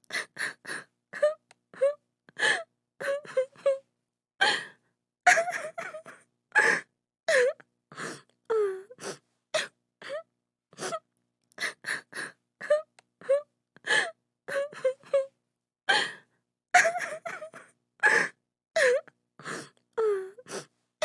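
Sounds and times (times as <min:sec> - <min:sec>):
woman sobbing: 0:05.3 - 0:07.6, 0:16.8 - 0:19.0.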